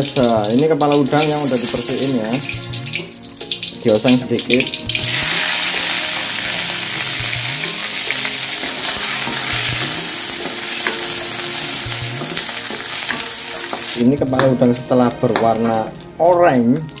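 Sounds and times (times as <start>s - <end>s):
prawn heads sizzling in oil: 0.0s - 17.0s.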